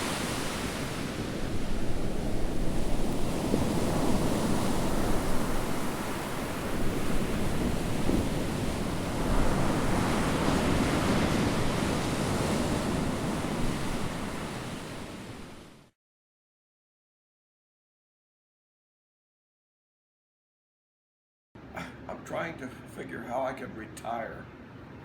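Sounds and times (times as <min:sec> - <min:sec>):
wind buffeting microphone: 0:00.0 - 0:15.8
ocean surf washing on shore: 0:00.0 - 0:15.9.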